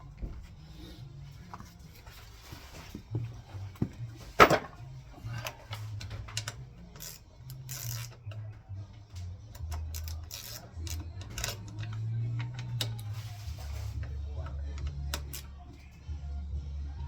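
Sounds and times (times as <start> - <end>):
handling clicks and knocks: 2.9 - 8.5.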